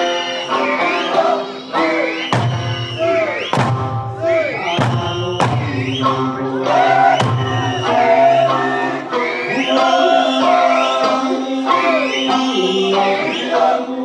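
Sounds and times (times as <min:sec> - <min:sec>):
person singing folk song: 0:00.0 - 0:14.0
plucked lute accompaniment: 0:00.0 - 0:14.0
heavy drum strikes: 0:02.3 - 0:08.8.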